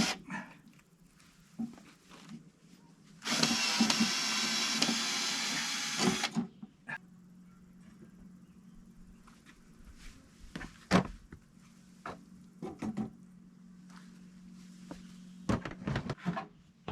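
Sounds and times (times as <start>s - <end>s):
small electric motor running: 3.2s - 6.4s.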